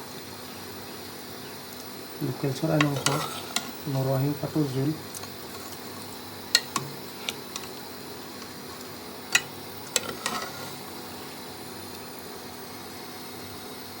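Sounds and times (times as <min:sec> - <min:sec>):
steady low hiss: 0:00.8 - 0:12.3
spoon clinking on metal cookware: 0:02.8 - 0:03.8, 0:06.5 - 0:07.8, 0:09.3 - 0:10.8.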